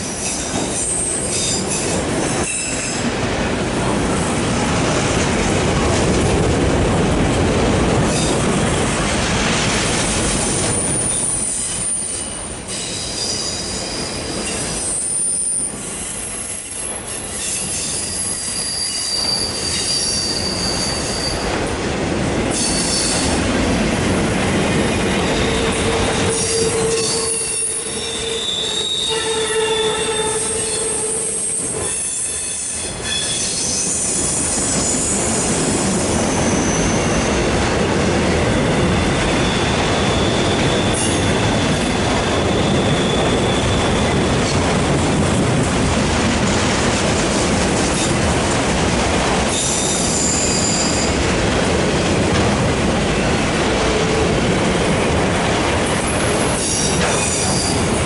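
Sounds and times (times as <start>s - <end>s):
freight car wheels rumbling on rail: 0.0s - 58.0s
high-pitched wheel squeal: 10.8s - 21.4s, 25.2s - 34.0s, 39.2s - 44.2s, 49.5s - 51.2s.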